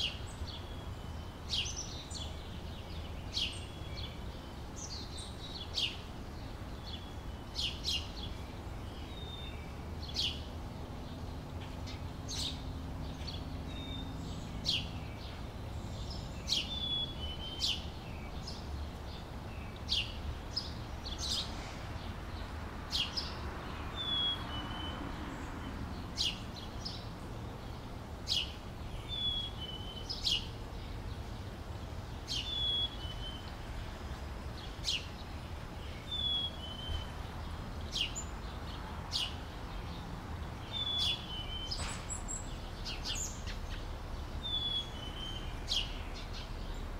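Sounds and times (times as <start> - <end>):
small bird chirping: 40.6 - 46.8.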